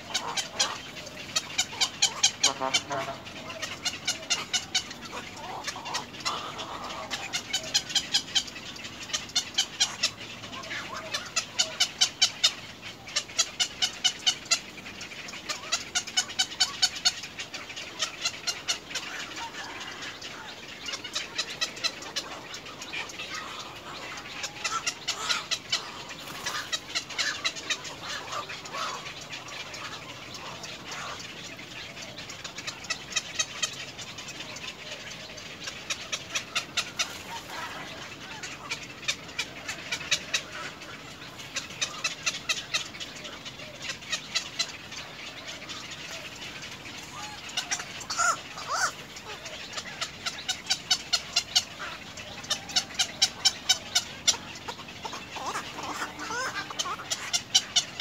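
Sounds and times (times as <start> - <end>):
outdoor background noise: 0.0 - 58.0.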